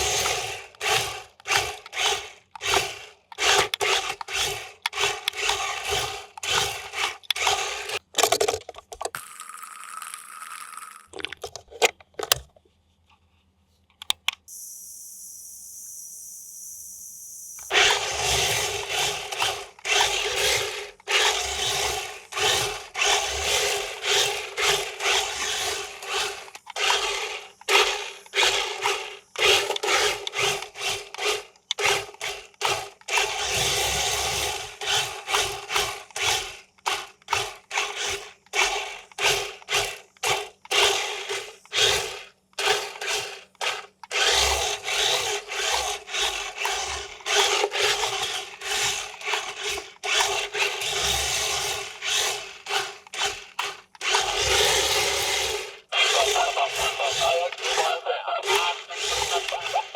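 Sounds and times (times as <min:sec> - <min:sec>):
toy motor and gears whirring: 0:00.0 - 0:12.4, 0:14.0 - 0:59.9
clicks: 0:13.8 - 0:14.5.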